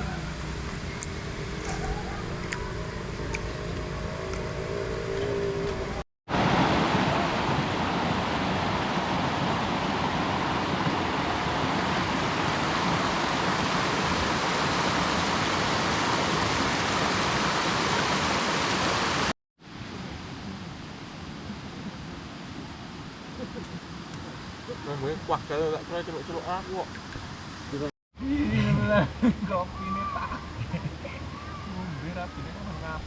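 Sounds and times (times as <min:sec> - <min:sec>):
river water rushing: 0:00.0 - 0:19.9.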